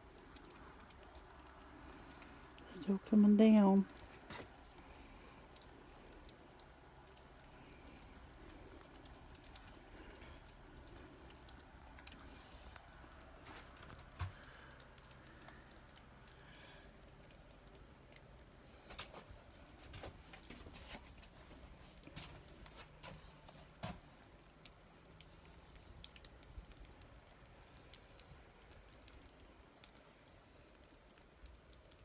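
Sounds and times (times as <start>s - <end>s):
light ticks: 0.1s - 32.0s.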